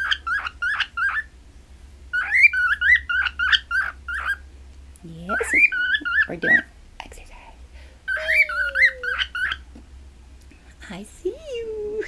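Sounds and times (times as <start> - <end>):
cockatiel chirping and whistling: 0.0 - 1.3, 2.1 - 4.4, 5.4 - 6.6, 8.1 - 9.6.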